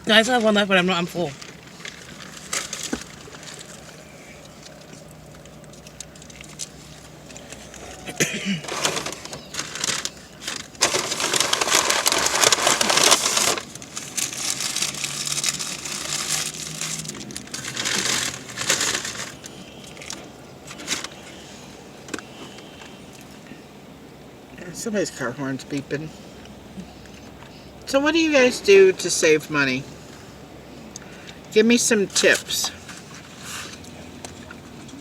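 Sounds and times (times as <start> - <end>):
paper wrappers crumpling: 0.1 - 21.4.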